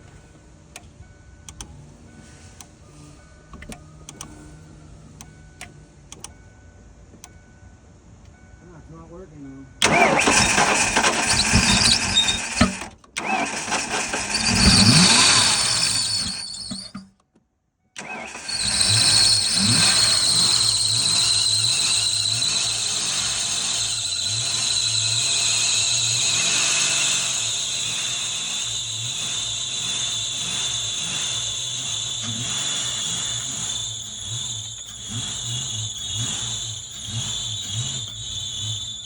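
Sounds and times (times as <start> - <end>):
car engine cranking and running: 0.0 - 6.5, 9.8 - 17.2, 18.0 - 39.0
high whine: 13.4 - 17.0, 18.0 - 39.0.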